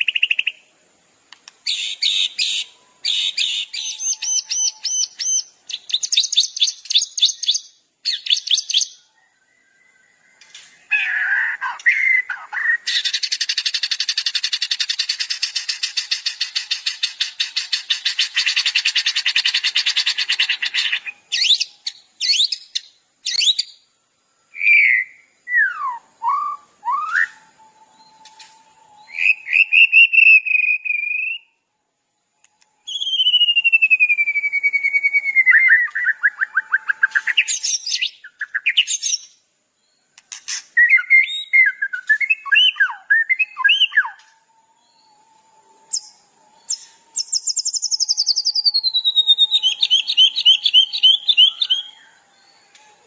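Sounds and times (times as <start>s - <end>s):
songbird whistled phrases: 0.0s - 0.7s, 1.6s - 23.8s, 24.5s - 31.7s, 32.4s - 39.4s, 40.5s - 53.0s
songbird buzzy trill: 0.0s - 23.9s, 24.5s - 31.6s, 32.2s - 53.0s.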